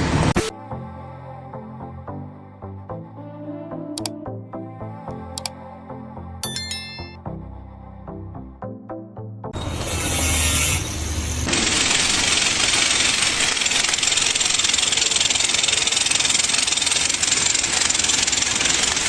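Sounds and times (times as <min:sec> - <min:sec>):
heavy machine running loudly: 0:10.9 - 0:19.0.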